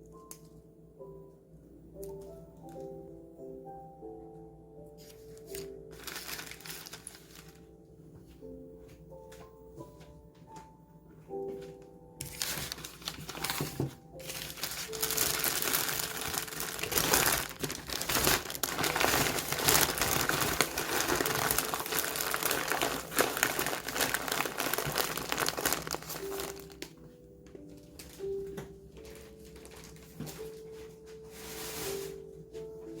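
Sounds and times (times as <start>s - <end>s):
wrapping being crumpled: 5.0s - 7.8s, 12.2s - 26.9s, 27.6s - 32.3s.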